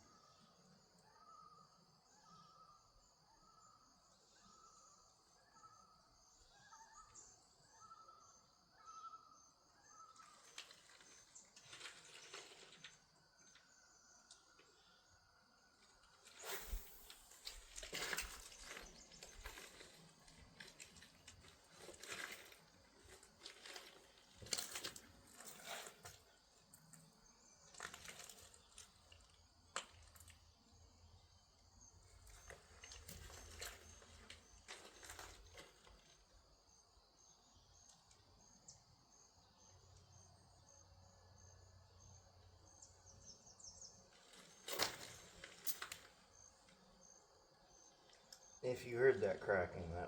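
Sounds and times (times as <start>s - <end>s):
insects trilling: 0.0s - 50.0s
rustling and light clicking: 10.2s - 13.7s, 16.0s - 27.0s
distant birds chirping: 13.2s - 36.1s.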